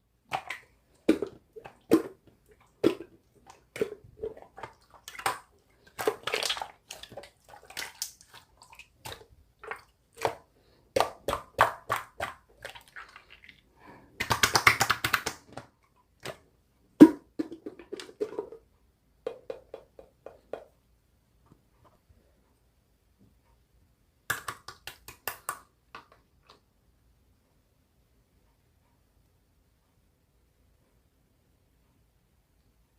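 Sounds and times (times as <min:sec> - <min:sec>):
hands squishing slime: 0:00.3 - 0:16.4.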